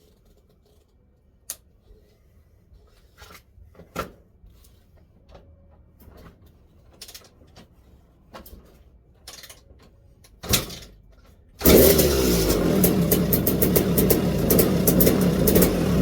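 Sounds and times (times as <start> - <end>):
kick-start thump: 11.6 - 16.0
motorcycle engine running loud: 11.6 - 16.0.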